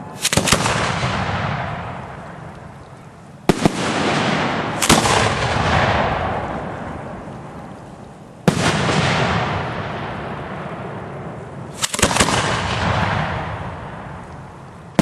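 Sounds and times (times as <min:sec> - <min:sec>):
firework shells exploding: 0:00.0 - 0:02.8, 0:03.4 - 0:07.8, 0:08.4 - 0:15.0.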